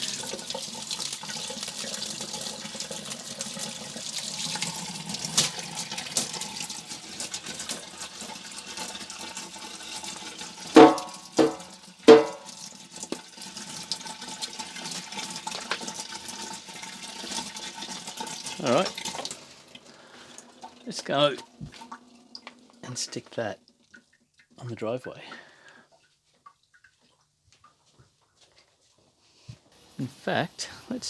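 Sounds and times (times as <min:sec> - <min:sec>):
tap water running: 0:00.0 - 0:24.6
sharp knocks with ring: 0:10.8 - 0:12.4.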